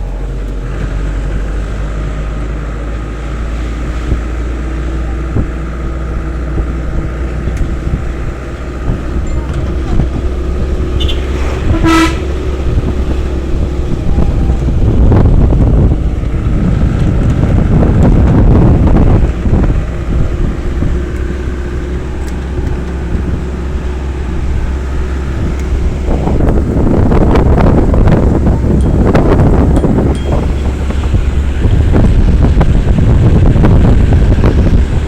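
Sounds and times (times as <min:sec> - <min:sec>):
vehicle running on road: 0:00.0 - 0:35.0
car horn toot: 0:10.9 - 0:12.8.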